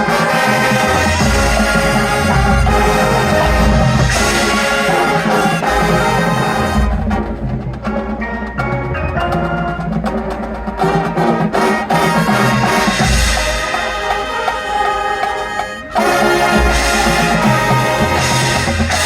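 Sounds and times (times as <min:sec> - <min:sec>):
low drums and percussion: 0:00.0 - 0:19.0
marching band playing: 0:00.0 - 0:19.0.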